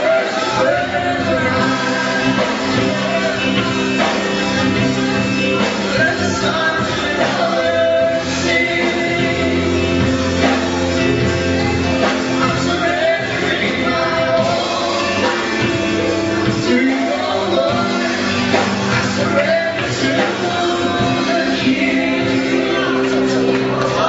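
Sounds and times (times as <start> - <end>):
voices singing: 0.0 - 24.0
worship band playing: 0.0 - 24.0.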